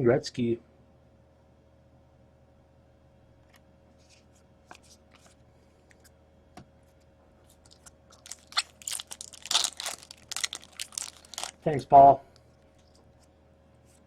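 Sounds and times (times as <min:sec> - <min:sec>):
plastic wrapping crinkling: 0:07.5 - 0:11.7.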